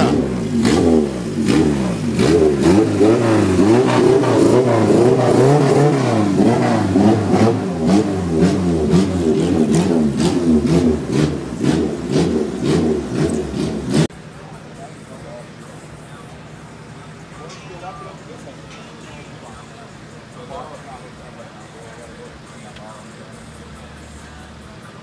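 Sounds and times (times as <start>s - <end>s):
car engine revving: 0.0s - 14.1s.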